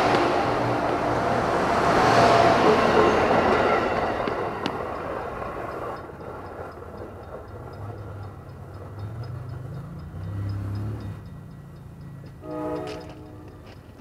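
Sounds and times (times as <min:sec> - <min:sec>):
passing train rumble: 0:00.0 - 0:14.0
brief higher tone: 0:12.4 - 0:13.7.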